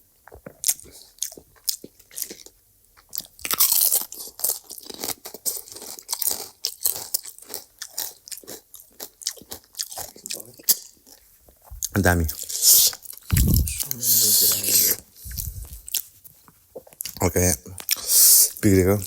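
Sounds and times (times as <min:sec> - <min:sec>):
crunching and chewing: 0:00.0 - 0:18.8
wet mouth clicks: 0:11.7 - 0:16.0.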